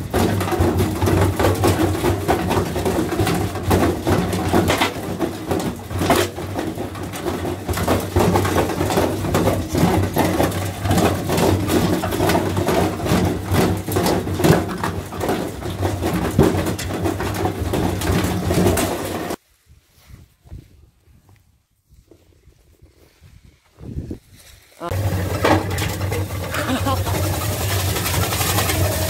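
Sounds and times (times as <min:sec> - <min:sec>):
washing machine knocking and rattling: 0:00.0 - 0:19.4, 0:24.9 - 0:29.0
washing machine motor hum: 0:24.9 - 0:29.0.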